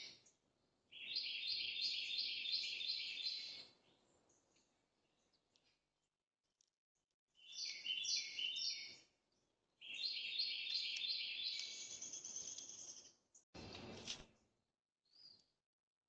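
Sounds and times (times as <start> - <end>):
songbird singing: 0.0 - 5.6, 7.4 - 9.2, 9.8 - 14.0.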